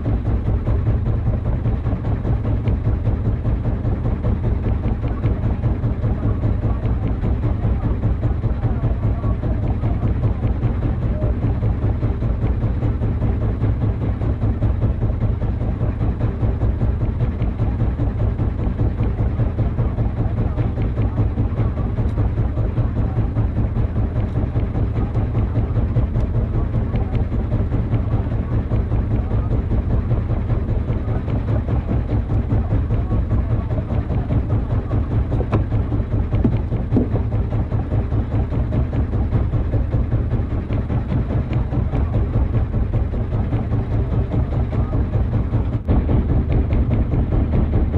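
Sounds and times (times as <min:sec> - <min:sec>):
boat engine idling: 0:00.0 - 0:47.9.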